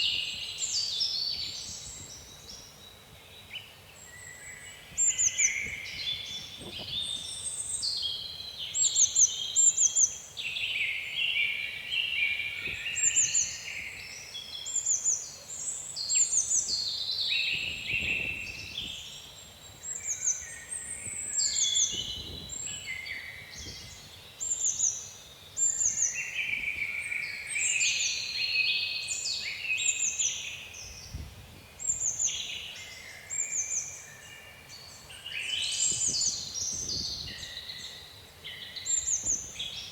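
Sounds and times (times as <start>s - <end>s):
songbirds singing: 0.0s - 39.9s
low wind rumble: 17.5s - 19.1s, 20.8s - 24.1s.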